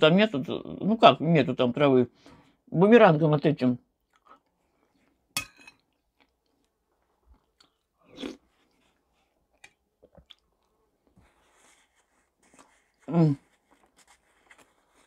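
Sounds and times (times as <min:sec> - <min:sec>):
woman chewing soup: 0:04.0 - 0:11.1.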